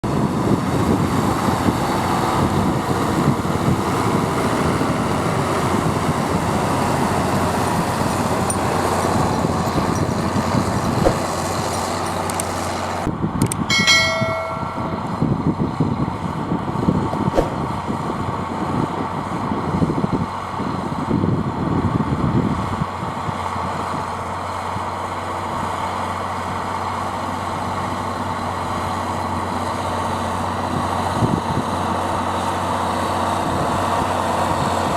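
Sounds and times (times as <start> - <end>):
diesel tractor engine under load: 0.1 - 34.9
harrows clattering: 13.7 - 15.2.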